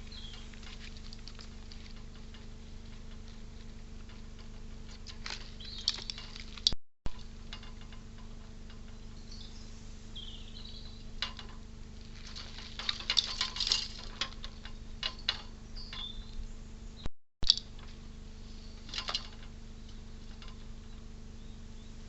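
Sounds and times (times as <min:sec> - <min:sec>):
small sharp clicks and scratches: 0:00.0 - 0:08.9
low hum: 0:00.0 - 0:22.0.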